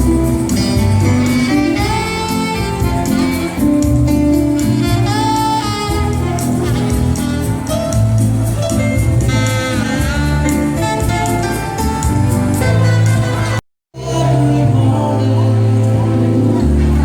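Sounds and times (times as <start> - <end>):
soft instrumental band music: 0.0 - 17.0.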